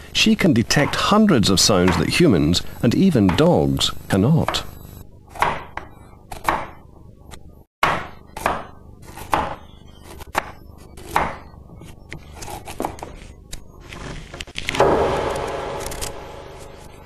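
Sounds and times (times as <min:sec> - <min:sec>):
knife chopping on wooden board: 0:07.8 - 0:09.6.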